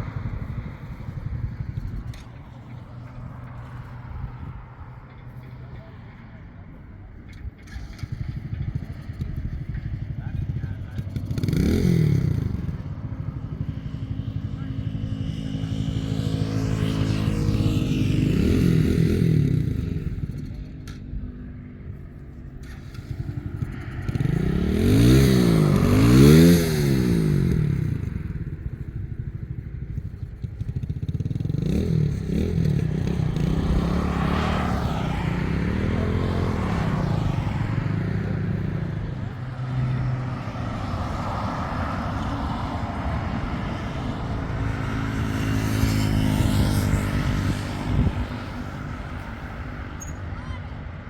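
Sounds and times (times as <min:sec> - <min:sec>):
engine revving up and down: 0:22.6 - 0:28.2, 0:31.4 - 0:50.6.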